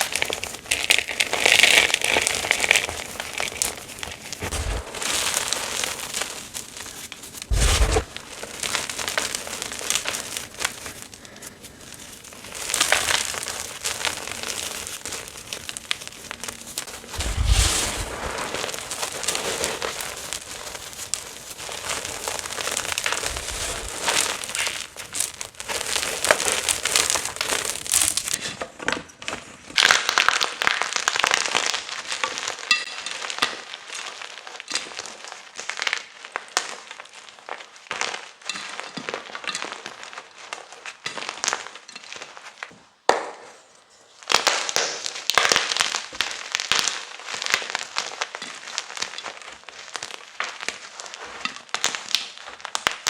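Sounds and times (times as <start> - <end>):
chalk crunching and crumbling: 0.0 - 28.6, 44.2 - 53.0.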